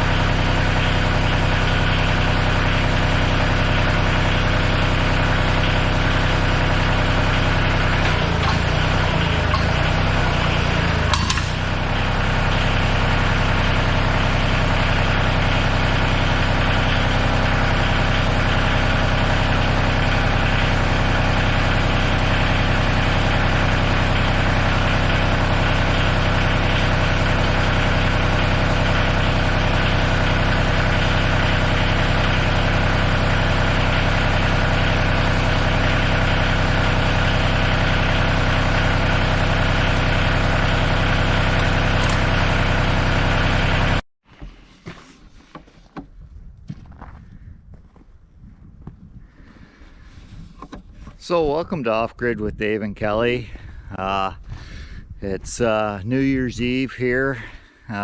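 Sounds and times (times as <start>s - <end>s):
tractor engine idling: 0.0s - 44.0s
sharp click: 11.0s - 11.8s.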